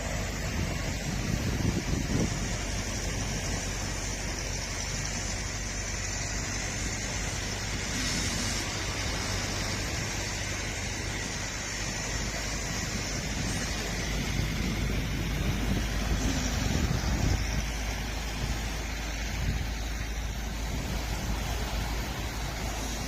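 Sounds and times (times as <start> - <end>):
steady rushing noise: 0.0 - 23.0.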